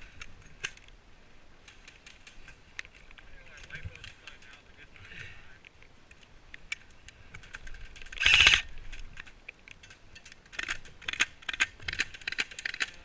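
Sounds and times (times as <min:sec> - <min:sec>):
loud rattling burst: 0:08.1 - 0:08.7.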